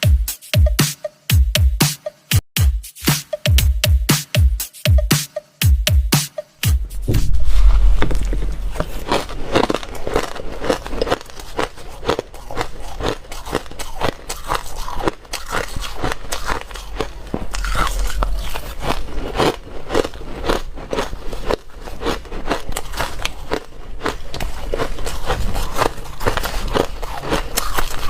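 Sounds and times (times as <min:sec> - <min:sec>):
low rumble: 0:06.6 - 0:11.1, 0:16.6 - 0:20.4
ice being chewed: 0:08.2 - 0:28.0.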